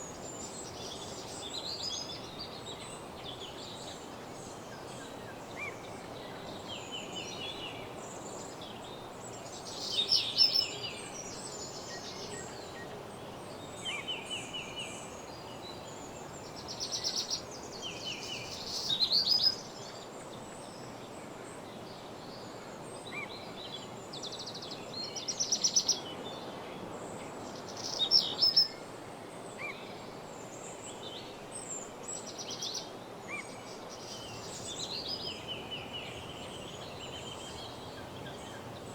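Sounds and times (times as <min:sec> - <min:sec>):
songbirds singing: 0:00.0 - 0:20.3, 0:29.5 - 0:38.9
steady background hiss: 0:00.0 - 0:38.9.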